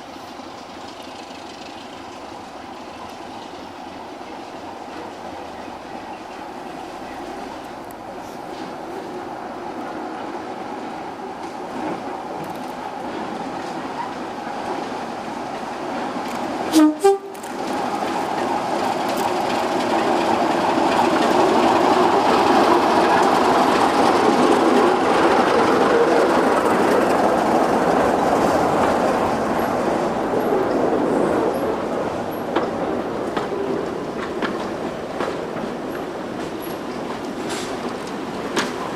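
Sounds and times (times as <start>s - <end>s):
train passing: 0.0s - 38.9s
wheels clicking over rail joints: 0.0s - 38.9s
train horn blasts: 16.7s - 17.5s.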